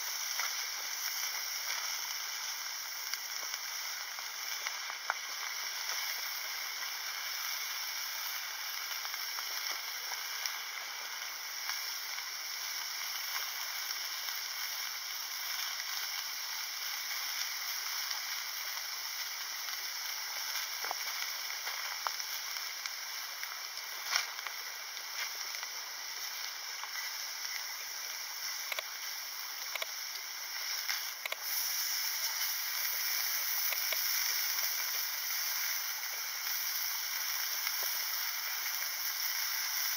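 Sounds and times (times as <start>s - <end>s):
meat sizzling in a frying pan: 0.0s - 39.9s.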